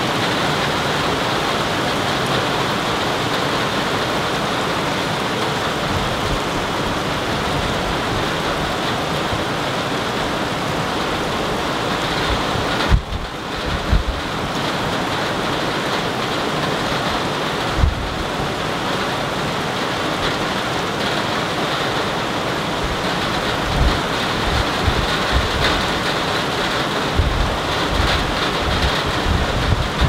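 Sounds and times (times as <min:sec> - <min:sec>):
rain falling: 0:00.0 - 0:30.0
wind buffeting microphone: 0:05.3 - 0:15.7, 0:16.7 - 0:18.6, 0:22.7 - 0:30.0.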